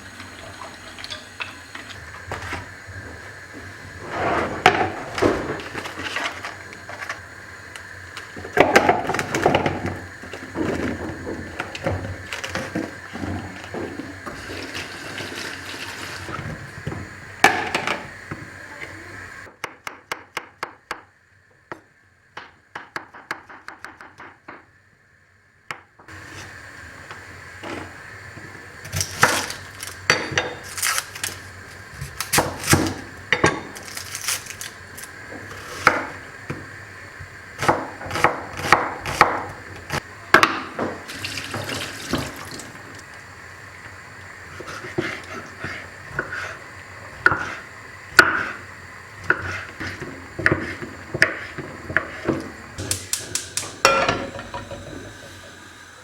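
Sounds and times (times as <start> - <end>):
running water: 0.0 - 3.2, 12.2 - 16.7, 41.0 - 43.2
dishes and utensils clattering: 0.4 - 2.0, 51.9 - 55.4.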